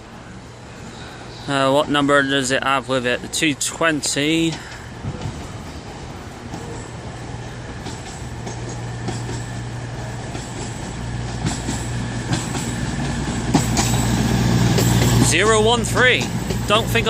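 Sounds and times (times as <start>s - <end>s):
train engine hum: 0.0s - 17.0s
train wheels clicking: 4.0s - 17.0s.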